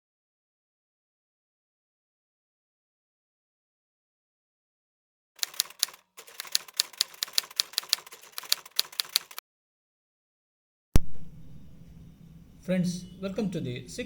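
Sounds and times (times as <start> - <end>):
rapid sharp clicks: 5.4 - 9.4.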